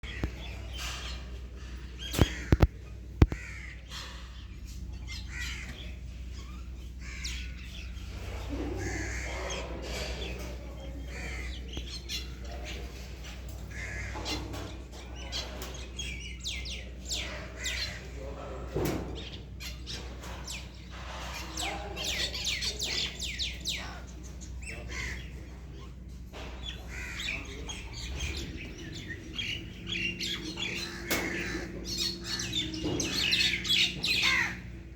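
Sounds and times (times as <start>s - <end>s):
birds chirping and calling: 0.0s - 34.9s
steady low hum: 0.0s - 34.9s
sharp clicks: 2.1s - 3.4s.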